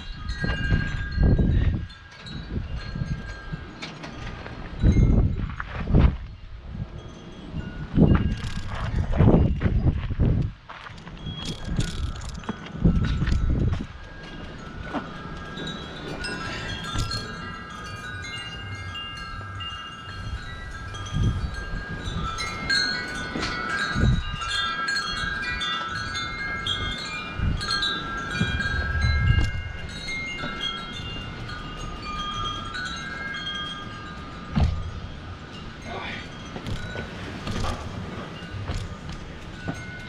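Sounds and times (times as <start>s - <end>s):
wind chimes ringing: 0.0s - 10.0s, 10.8s - 40.0s
wind buffeting microphone: 0.0s - 40.0s.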